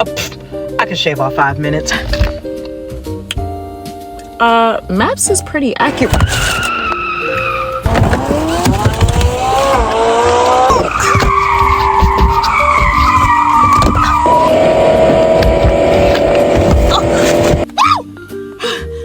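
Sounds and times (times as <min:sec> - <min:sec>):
car engine revving: 0:05.8 - 0:17.6
car tyres squealing: 0:05.8 - 0:18.0.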